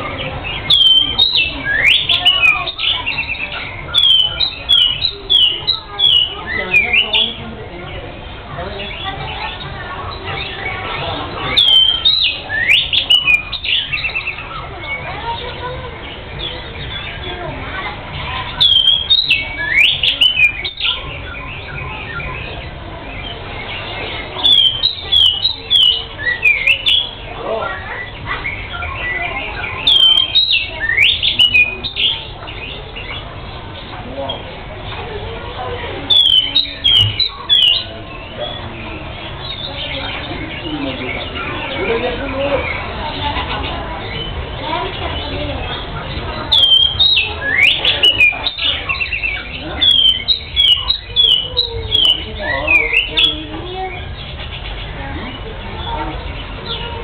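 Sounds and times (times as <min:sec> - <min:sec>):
bird singing: 0:00.0 - 0:57.0
bird singing sharp whistles: 0:11.6 - 0:14.4.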